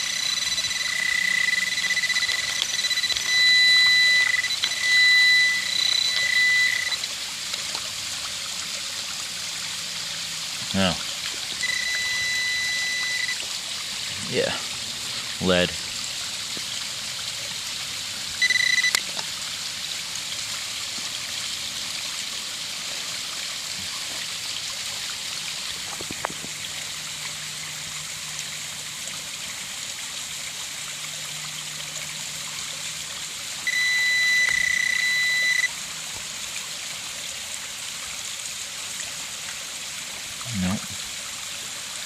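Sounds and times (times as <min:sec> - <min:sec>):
metal detector beeps: 0:00.0 - 0:07.0, 0:11.6 - 0:13.4, 0:18.4 - 0:19.0, 0:33.7 - 0:35.7
stream water running over rock: 0:00.0 - 0:42.0.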